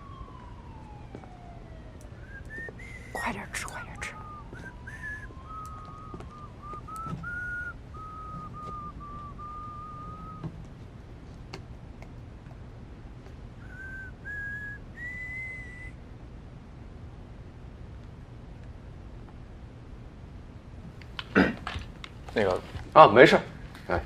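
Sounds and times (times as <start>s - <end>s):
person whistling a tune: 2.2s - 10.4s, 13.6s - 16.0s.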